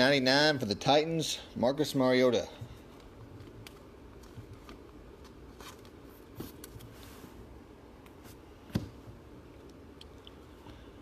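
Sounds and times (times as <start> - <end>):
trading cards rustling and clicking: 2.8 - 7.0.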